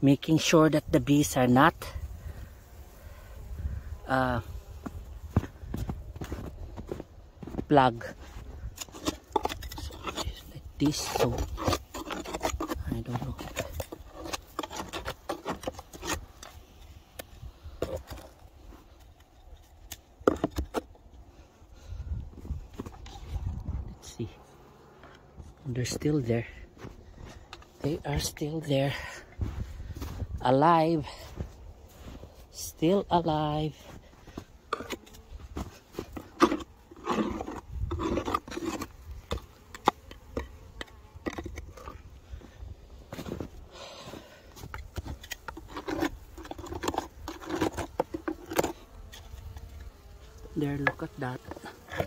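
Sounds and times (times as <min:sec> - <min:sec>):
scraping snow from hive: 0:00.2 - 0:19.4, 0:21.3 - 0:52.0
scraping and knocking on wood: 0:08.8 - 0:16.8, 0:19.9 - 0:21.0, 0:34.7 - 0:42.0, 0:44.6 - 0:49.8.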